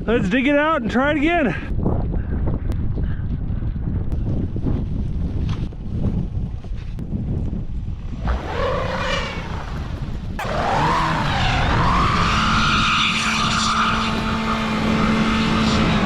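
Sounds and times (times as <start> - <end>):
wind rumbling on microphone: 0.0 - 16.0
wheels spinning in snow: 7.8 - 16.0
car engine revving: 8.2 - 16.0.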